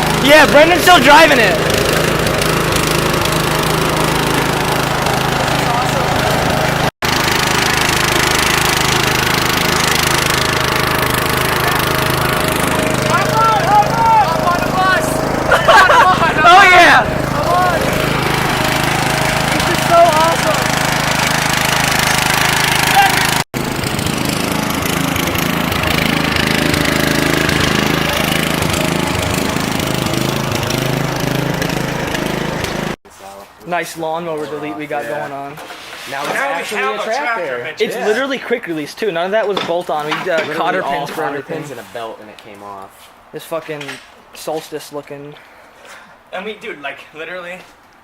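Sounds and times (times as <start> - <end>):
lawn tractor engine running: 0.0 - 33.0.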